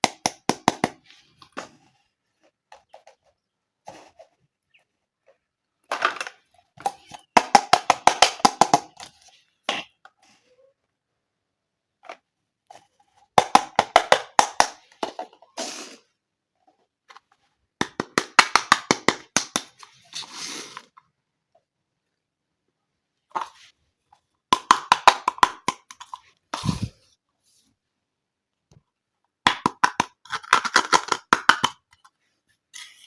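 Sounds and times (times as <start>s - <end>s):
plastic toy pieces clicking: 29.5s - 32.1s.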